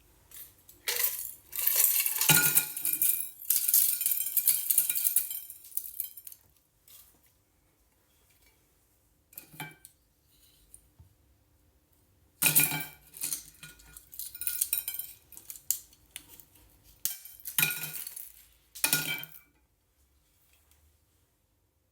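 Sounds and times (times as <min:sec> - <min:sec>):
plastic toy rattling in blender jar: 0:00.9 - 0:06.2.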